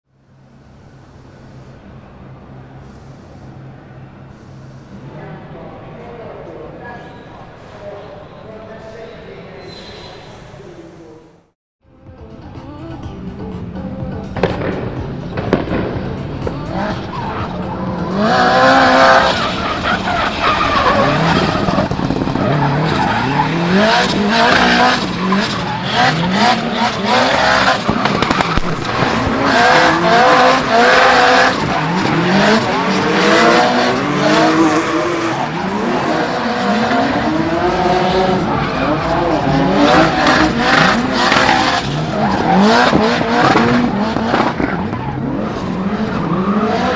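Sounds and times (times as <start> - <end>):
tyre squeal: 6.8 - 11.1, 16.4 - 46.9
car engine revving hard: 14.4 - 46.9.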